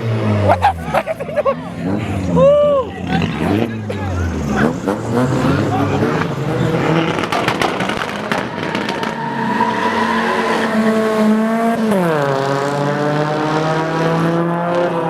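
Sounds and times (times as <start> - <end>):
car engine at high revs: 0.0 - 15.0
tire squeal: 0.4 - 12.4
sharp pops: 6.2 - 9.2.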